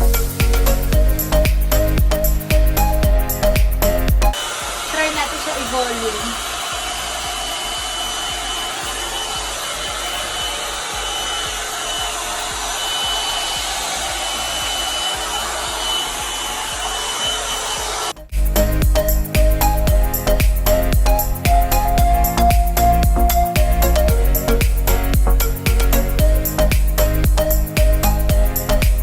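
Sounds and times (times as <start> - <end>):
music: 0.0 - 17.4, 18.1 - 29.0
hair dryer running: 4.3 - 18.2.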